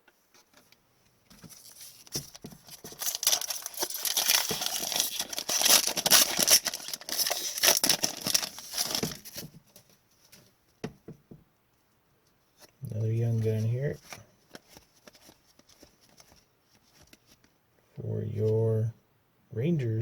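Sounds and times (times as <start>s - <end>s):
wrapper tearing and crinkling: 1.6s - 9.4s.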